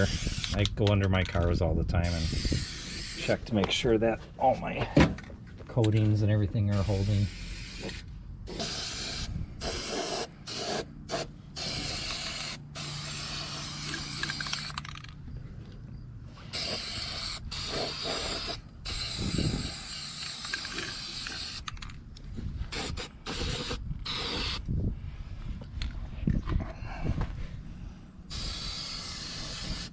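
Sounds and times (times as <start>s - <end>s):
spray paint can hissing: 0.0s - 0.6s, 2.1s - 3.3s, 6.8s - 14.8s, 16.5s - 21.7s, 22.7s - 24.6s, 28.3s - 29.9s.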